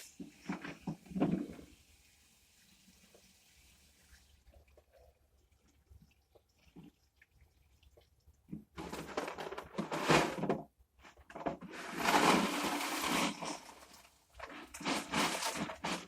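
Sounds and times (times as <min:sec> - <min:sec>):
water splashing and pouring: 0:00.0 - 0:10.4.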